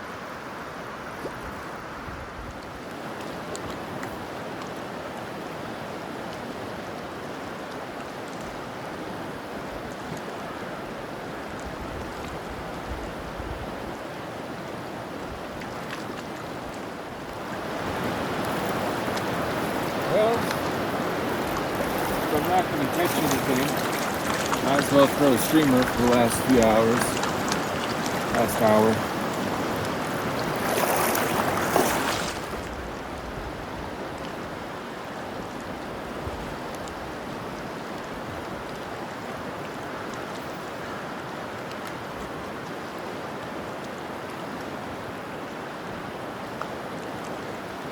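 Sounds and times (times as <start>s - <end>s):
river current rushing: 0.0s - 47.9s.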